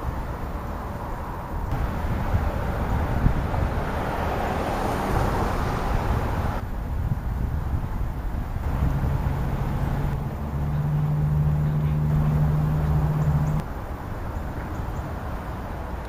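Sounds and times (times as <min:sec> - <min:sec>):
outdoor rumble: 0:00.0 - 0:06.6, 0:08.4 - 0:13.7
low engine-like hum: 0:08.2 - 0:16.0.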